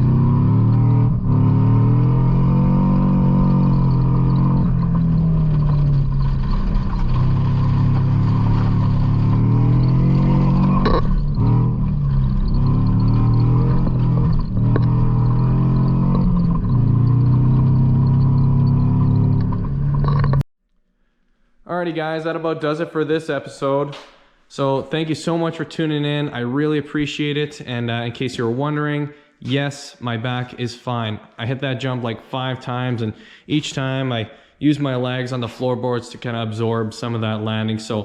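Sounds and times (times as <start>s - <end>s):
truck engine revving hard: 0.0s - 20.4s.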